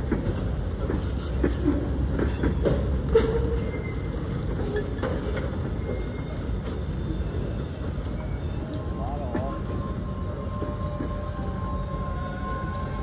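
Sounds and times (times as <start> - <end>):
clicks at rail joints: 0.0 - 3.6
steel wheels rumbling on rails: 0.0 - 13.0
wheel squeal: 1.6 - 13.0.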